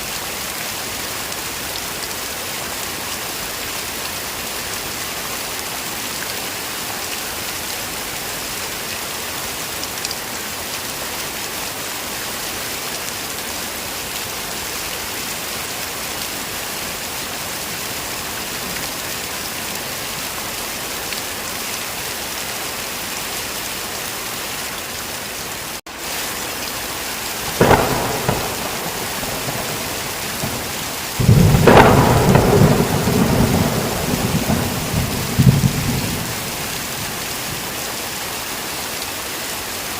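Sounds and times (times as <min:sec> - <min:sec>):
heavy rain hissing: 0:00.0 - 0:39.9
rolling thunder rumble: 0:27.4 - 0:37.6
thunder clap: 0:27.5 - 0:37.2.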